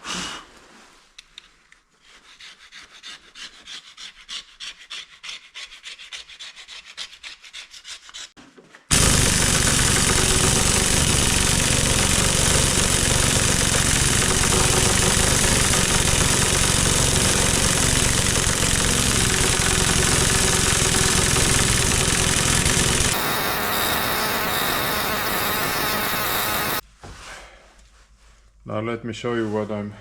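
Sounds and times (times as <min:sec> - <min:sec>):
machine motor pulsing: 0:08.9 - 0:26.8.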